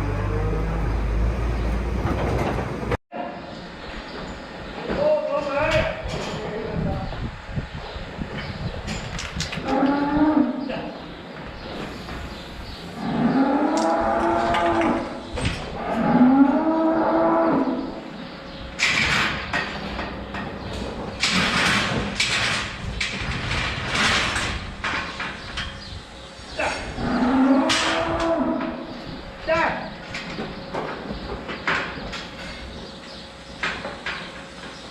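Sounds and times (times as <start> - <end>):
cattle mooing: 13.0 - 15.2, 15.8 - 18.0, 26.7 - 28.9.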